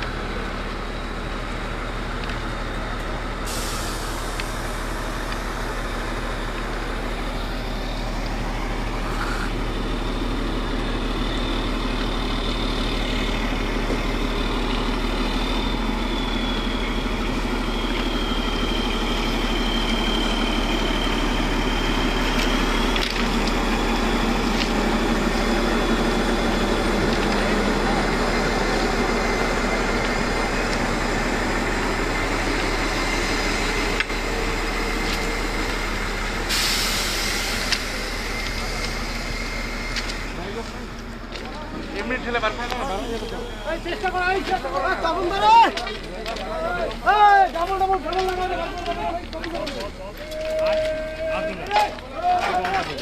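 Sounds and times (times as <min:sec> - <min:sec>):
large engine with high whine: 0:00.0 - 0:53.0
short hiss: 0:03.5 - 0:04.7, 0:36.5 - 0:39.2.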